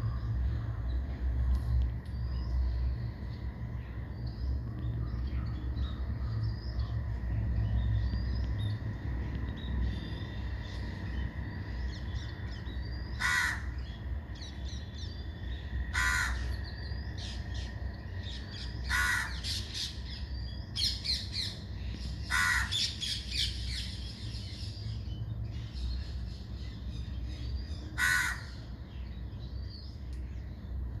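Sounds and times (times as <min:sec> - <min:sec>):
bird harsh calls: 0:13.1 - 0:14.0, 0:15.9 - 0:16.7, 0:18.4 - 0:20.1, 0:22.2 - 0:24.4, 0:27.7 - 0:28.8.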